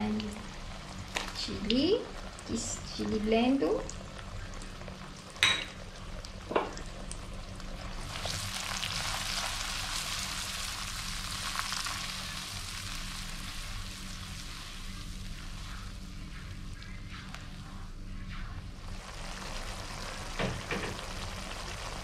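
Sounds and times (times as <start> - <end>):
paste sizzling in hot oil: 7.8 - 16.0.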